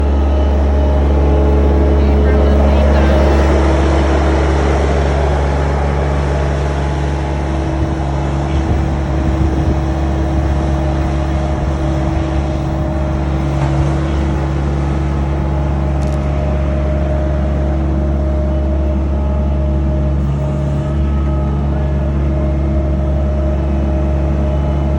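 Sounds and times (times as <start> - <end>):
skid steer engine running: 0.0 - 24.9.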